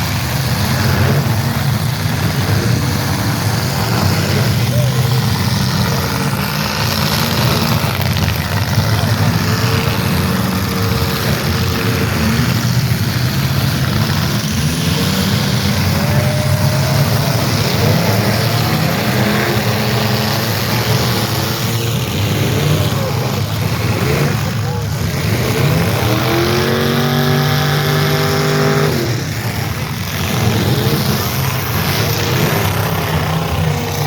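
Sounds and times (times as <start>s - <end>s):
car engines running loud: 0.0s - 34.0s.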